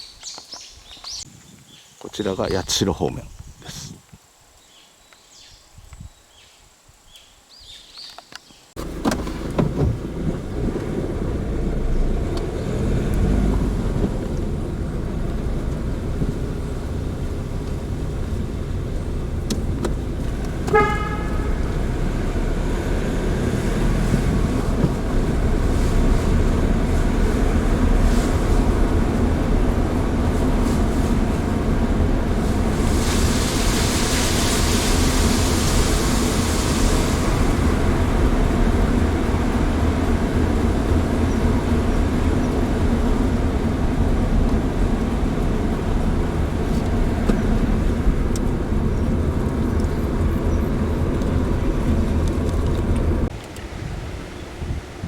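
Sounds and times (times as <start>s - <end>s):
car engine and road rumble: 8.1s - 55.0s
short horn-like beep: 20.7s - 21.8s
hiss: 32.2s - 38.7s.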